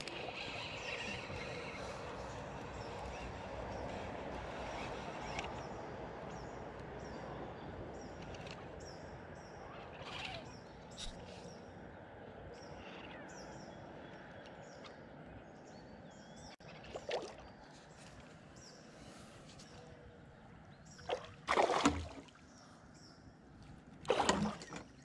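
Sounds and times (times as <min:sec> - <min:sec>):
small birds chirping: 0:00.1 - 0:16.8.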